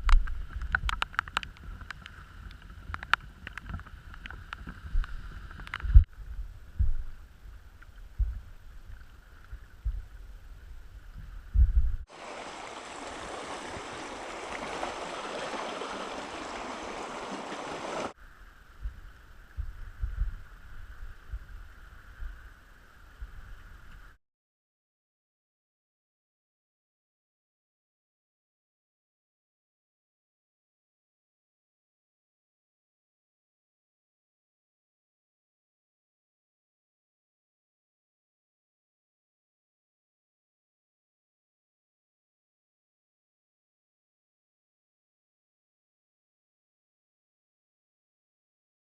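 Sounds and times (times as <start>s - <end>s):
rushing water: 0.0s - 6.1s, 12.1s - 24.2s.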